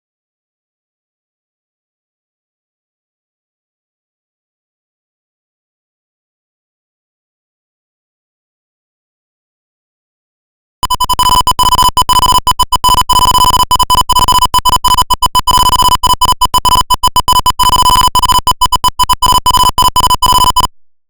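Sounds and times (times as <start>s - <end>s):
high electronic buzzer beep: 10.8s - 20.8s.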